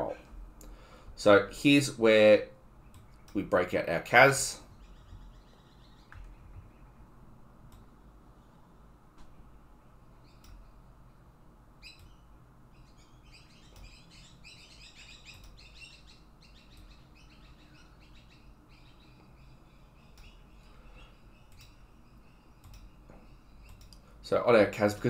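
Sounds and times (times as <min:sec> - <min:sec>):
faint birds chirping: 0:00.0 - 0:25.0
soft clicks: 0:02.9 - 0:03.5, 0:07.6 - 0:07.9, 0:10.3 - 0:10.8, 0:11.9 - 0:12.2, 0:13.7 - 0:14.0, 0:15.3 - 0:15.6, 0:20.1 - 0:20.4, 0:21.5 - 0:21.9, 0:22.6 - 0:24.1.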